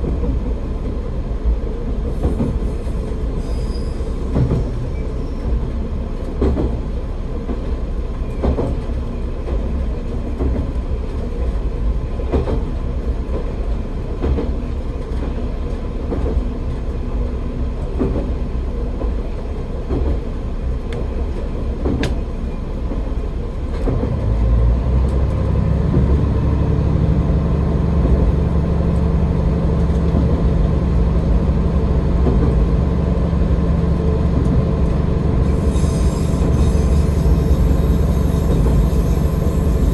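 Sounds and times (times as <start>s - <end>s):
diesel railcar engine drone: 0.0s - 39.9s.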